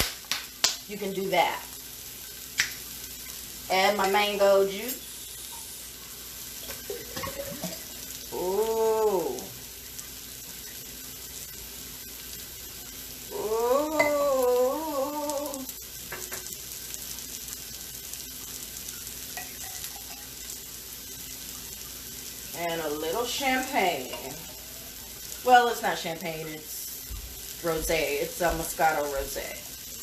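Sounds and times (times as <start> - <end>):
food sizzling in a pan: 0.0 - 30.0
pitched vocal sounds: 13.3 - 15.7.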